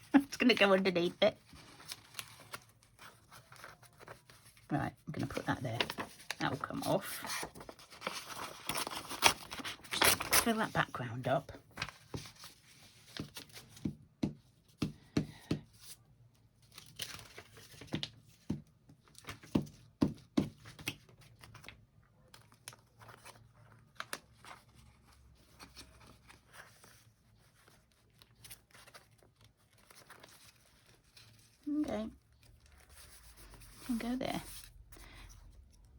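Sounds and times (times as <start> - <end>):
paper rustling: 0.1 - 11.0, 11.6 - 13.8, 20.7 - 35.9.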